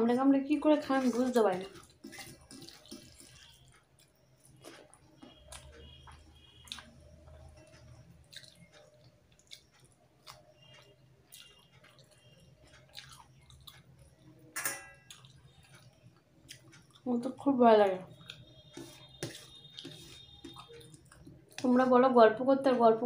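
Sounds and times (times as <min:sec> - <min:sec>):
rice squishing by hand: 0:00.8 - 0:12.4, 0:18.3 - 0:21.7
faint chewing and mouth clicks: 0:00.9 - 0:17.4, 0:18.0 - 0:21.8.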